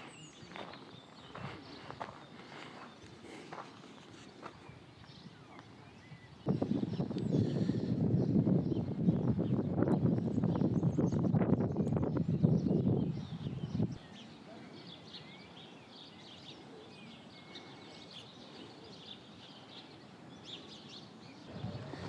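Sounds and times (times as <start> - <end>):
small birds chirping: 0.0 - 22.0
loud low rushing noise: 21.5 - 22.0.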